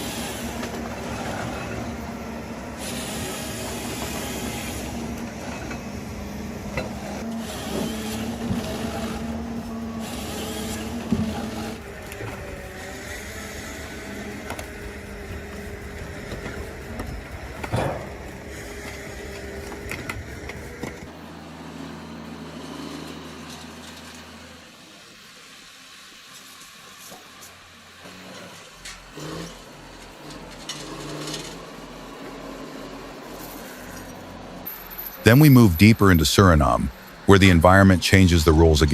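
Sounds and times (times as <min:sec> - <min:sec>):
heavy machinery running: 0:00.0 - 0:21.1.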